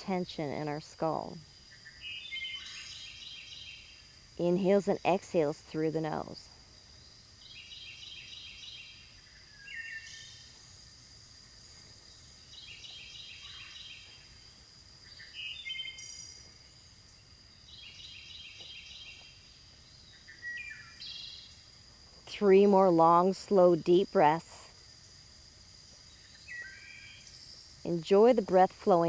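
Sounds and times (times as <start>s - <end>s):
birds chirping: 0.0s - 10.6s, 11.9s - 14.4s, 15.0s - 21.6s, 25.9s - 29.0s
high insect buzz: 0.0s - 29.0s.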